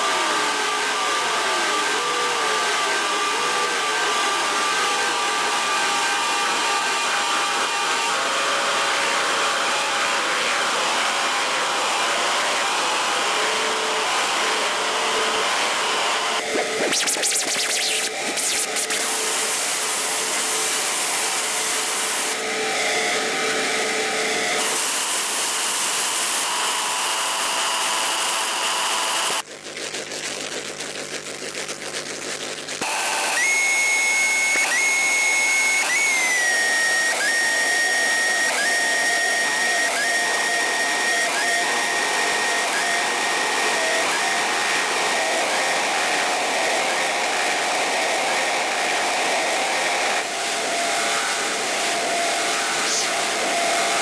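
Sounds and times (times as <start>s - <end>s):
harsh electronic noise hiss: 16.3s - 22.4s, 50.0s - 54.0s.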